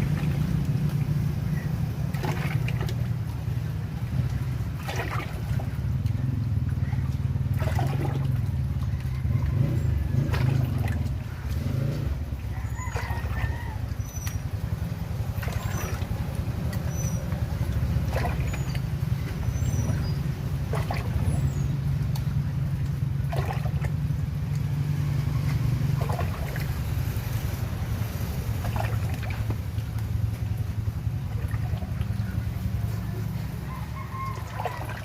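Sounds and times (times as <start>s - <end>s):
motorcycle engine running: 5.7s - 12.5s.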